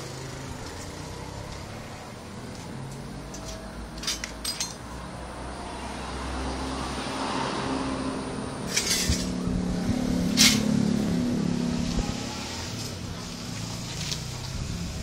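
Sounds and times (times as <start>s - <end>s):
short clinks: 3.3s - 4.8s.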